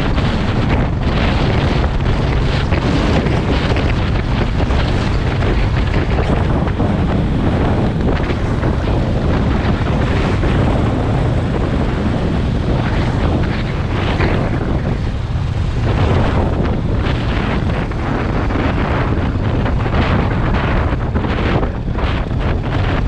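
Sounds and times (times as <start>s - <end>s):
motorcycle low rumble: 0.0s - 23.0s
wind buffeting microphone: 0.0s - 23.0s.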